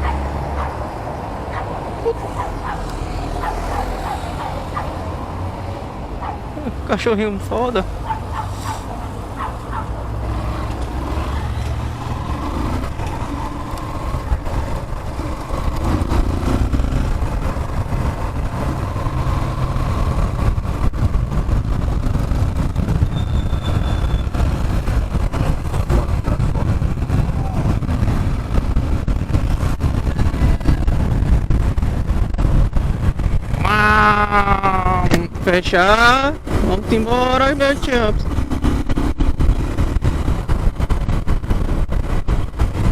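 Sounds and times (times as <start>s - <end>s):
motorcycle engine rumbling: 0.0s - 42.9s.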